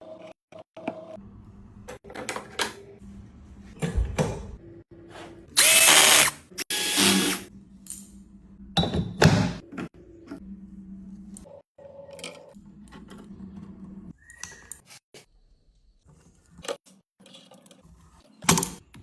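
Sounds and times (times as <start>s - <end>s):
handheld power tool running: 5.6s - 7.5s.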